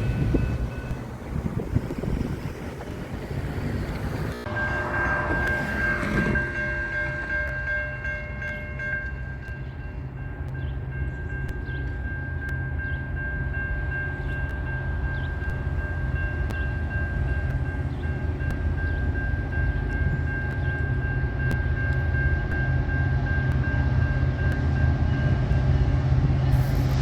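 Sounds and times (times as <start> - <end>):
train rumbling past: 0.0 - 27.0
steady high-pitched tone: 4.3 - 10.3, 13.3 - 27.0.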